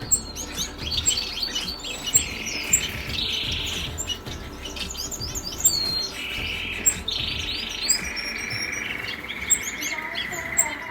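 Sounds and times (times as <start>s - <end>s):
parakeets chirping and chattering: 0.0s - 10.9s.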